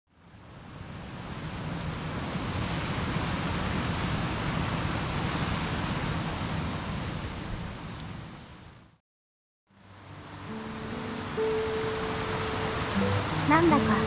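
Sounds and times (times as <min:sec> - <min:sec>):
steady rushing outdoor ambience: 0:09.7 - 0:14.0.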